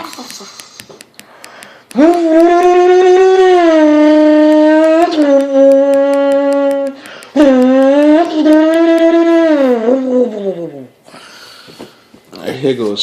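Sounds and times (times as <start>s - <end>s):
person imitating car engine: 1.9s - 11.0s.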